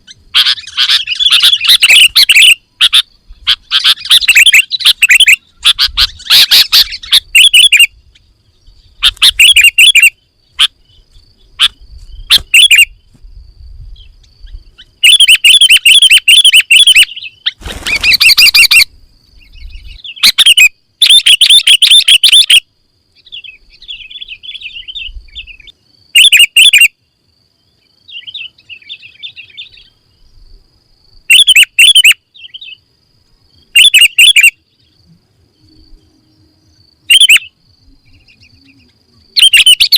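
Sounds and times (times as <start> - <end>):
bulbul chirping: 0.4 - 7.9, 9.0 - 10.7, 11.6 - 13.0, 15.0 - 17.3, 20.1 - 22.6, 31.3 - 32.7, 33.8 - 34.6, 37.1 - 38.4, 39.4 - 39.9.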